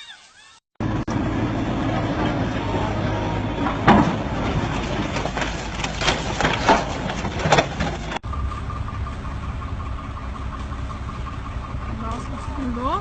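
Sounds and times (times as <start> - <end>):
diesel engine running: 0.8 - 13.0
loud clanks and knocks: 1.1 - 9.3.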